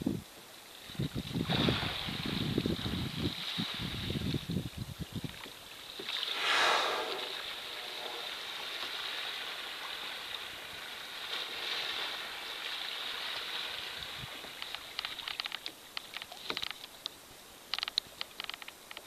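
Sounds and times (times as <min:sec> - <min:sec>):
water lapping around kayak: 0:00.2 - 0:18.6
small taps and drips: 0:14.4 - 0:19.0.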